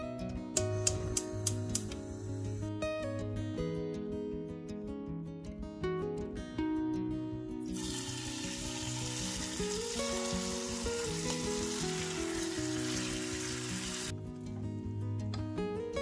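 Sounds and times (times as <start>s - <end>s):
food sizzling in hot oil: 7.7s - 14.1s.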